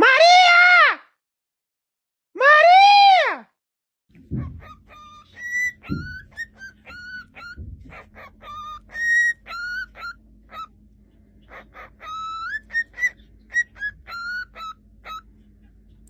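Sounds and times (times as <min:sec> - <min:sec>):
parrot whistling a tune: 0:04.3 - 0:10.7, 0:11.5 - 0:15.3.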